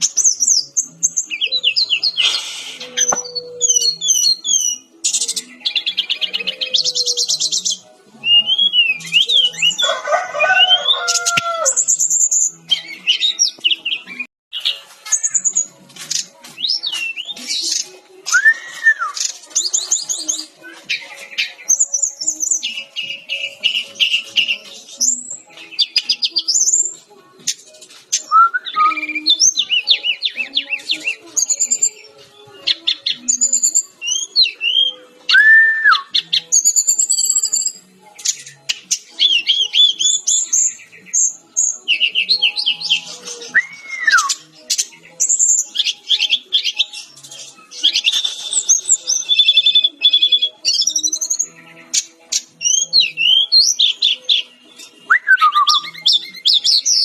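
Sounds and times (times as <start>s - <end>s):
flycatcher singing: 0.0s - 57.0s.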